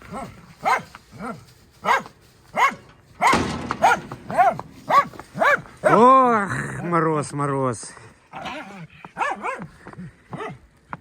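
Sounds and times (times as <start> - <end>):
dogs barking: 0.1 - 6.1, 8.4 - 9.7.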